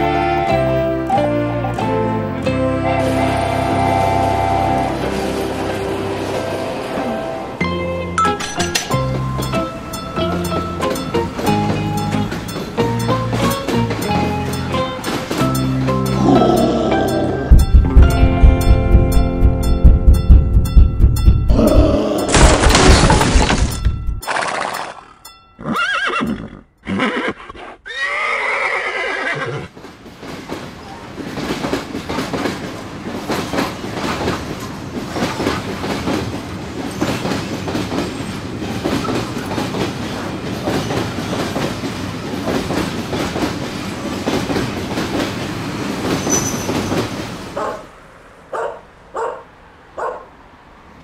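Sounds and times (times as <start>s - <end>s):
train rattling along rails: 0.0s - 22.4s, 23.7s - 26.7s, 29.4s - 51.0s
horse whinnying: 25.6s - 29.7s.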